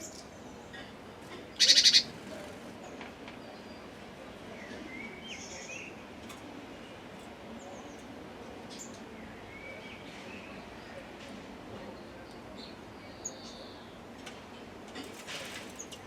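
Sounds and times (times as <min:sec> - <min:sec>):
outdoor background noise: 0:00.0 - 0:16.0
small birds chirping: 0:02.8 - 0:06.2, 0:06.9 - 0:11.1, 0:11.8 - 0:14.2.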